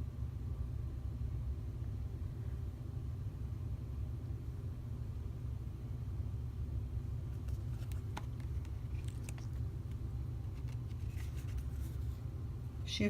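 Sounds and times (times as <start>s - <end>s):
low background rumble: 0.0s - 13.0s
cards clicking and rustling: 7.3s - 12.2s.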